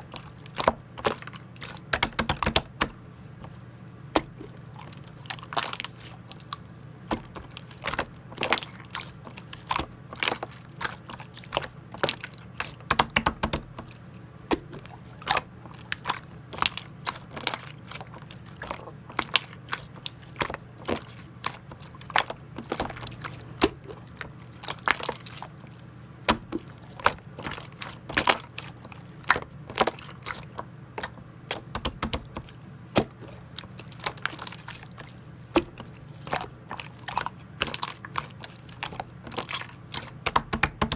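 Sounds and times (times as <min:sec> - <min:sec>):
slime squished by hand: 0:00.0 - 0:40.9.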